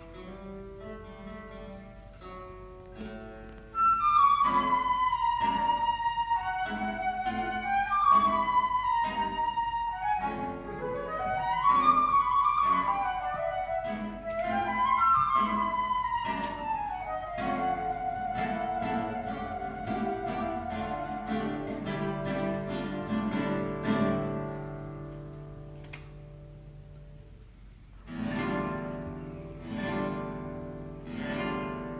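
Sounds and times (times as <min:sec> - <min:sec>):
plucked guitar: 0:00.0 - 0:31.9
flute melody: 0:03.6 - 0:24.4.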